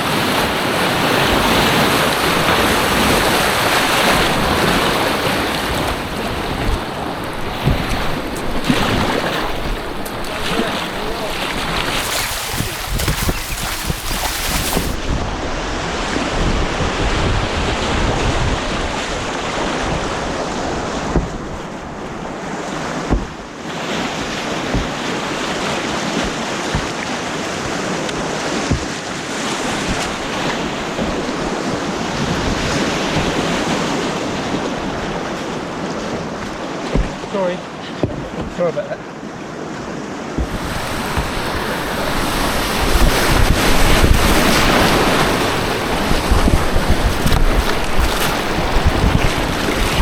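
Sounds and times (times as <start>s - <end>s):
rushing white water: 0.0s - 50.0s
sharp splashes or knocks: 2.2s - 15.2s, 23.0s - 34.7s, 36.0s - 37.3s, 40.4s - 50.0s.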